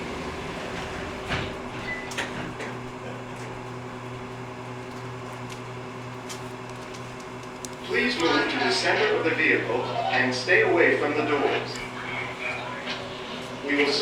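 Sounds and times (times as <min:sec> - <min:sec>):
sliding doors shutting with thud: 0:00.0 - 0:02.8
steady low hum with tones: 0:00.0 - 0:14.0.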